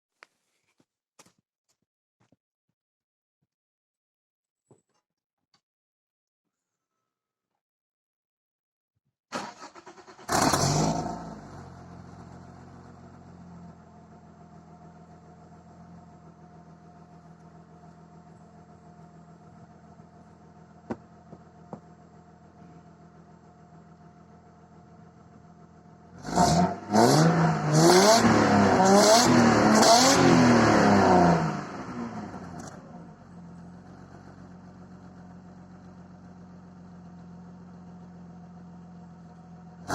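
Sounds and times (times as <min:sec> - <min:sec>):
engine cranking and starting: 0:09.3 - 0:11.2
engine revving: 0:09.4 - 0:12.8, 0:26.1 - 0:32.9
engine idling: 0:11.4 - 0:26.3, 0:32.0 - 0:39.9.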